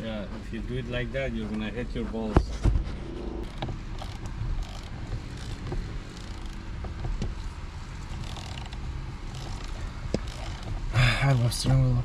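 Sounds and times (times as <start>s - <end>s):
low rumble: 2.0s - 6.2s
light clicks and knocks: 3.4s - 12.0s.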